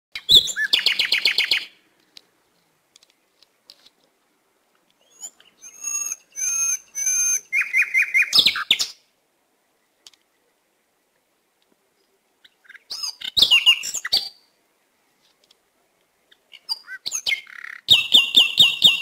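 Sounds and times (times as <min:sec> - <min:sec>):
bird whistled calls: 0:00.2 - 0:01.7, 0:05.0 - 0:09.0, 0:16.6 - 0:19.0.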